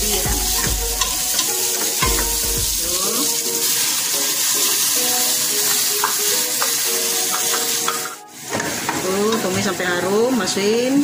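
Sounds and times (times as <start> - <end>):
onions sizzling in hot oil: 0.0 - 11.0
wooden spatula knocking on pot: 0.5 - 2.7.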